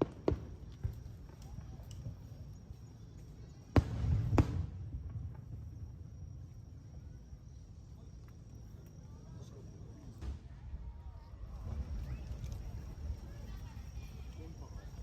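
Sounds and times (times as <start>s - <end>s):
fireworks bursting: 3.8s - 5.8s.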